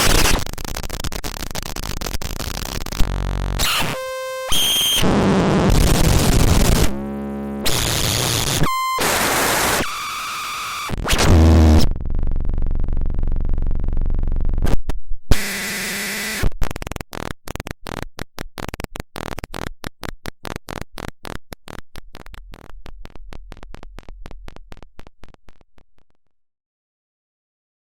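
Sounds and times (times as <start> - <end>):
stuttering clicks: 0.0 - 3.7, 16.4 - 26.4
static hiss and buzzes: 0.0 - 11.8.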